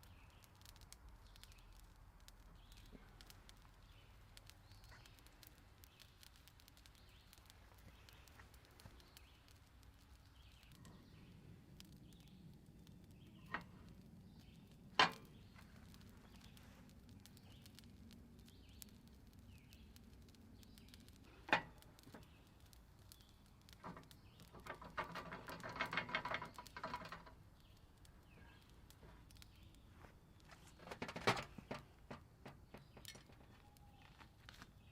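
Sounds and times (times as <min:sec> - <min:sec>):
rapid scratching or rattling: 0:23.7 - 0:27.4.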